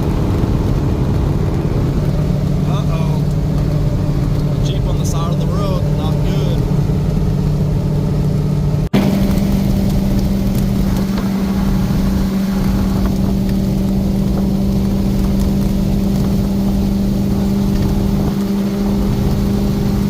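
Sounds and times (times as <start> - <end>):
engine drone: 0.0 - 20.0
road and tyre noise: 0.0 - 20.0.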